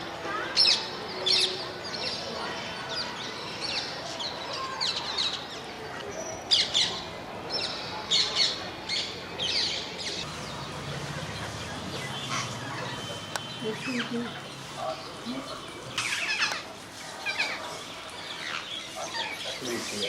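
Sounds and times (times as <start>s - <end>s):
parrots calling: 8.4s - 19.9s.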